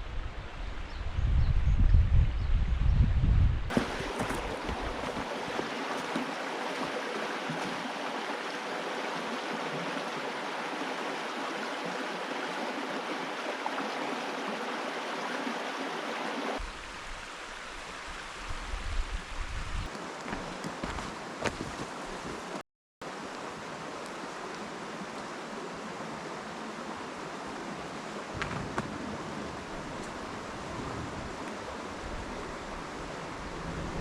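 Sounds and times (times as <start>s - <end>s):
wind rumble on microphone: 0.0s - 5.3s, 17.9s - 19.9s, 28.3s - 34.0s
stream water rushing: 3.7s - 34.0s.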